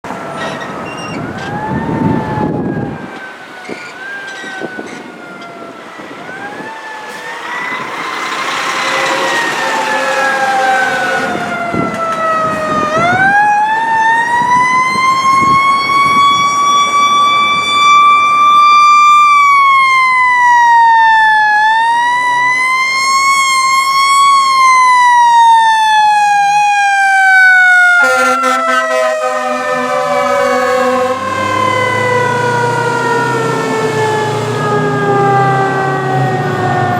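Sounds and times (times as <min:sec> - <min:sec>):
sirens wailing: 0:00.0 - 0:36.9
low horn blast: 0:08.0 - 0:13.1, 0:28.0 - 0:36.0.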